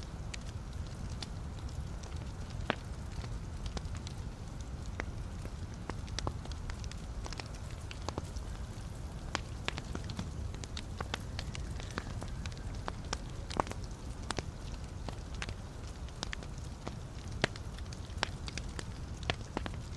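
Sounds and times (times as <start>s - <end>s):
burning logs crackling and popping: 0.0s - 19.9s
low rumble of flame: 0.0s - 19.9s.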